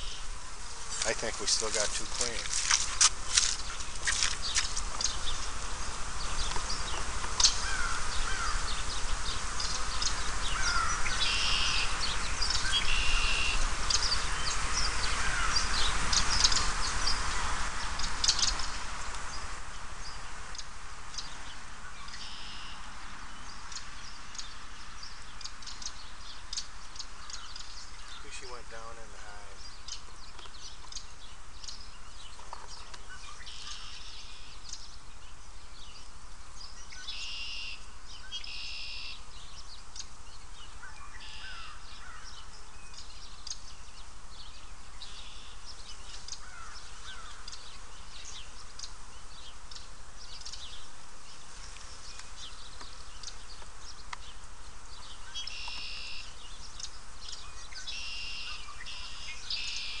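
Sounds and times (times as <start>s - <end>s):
bird harsh calls: 0.0s - 19.5s, 27.0s - 30.4s, 40.8s - 42.5s, 45.0s - 48.9s, 55.0s - 60.0s.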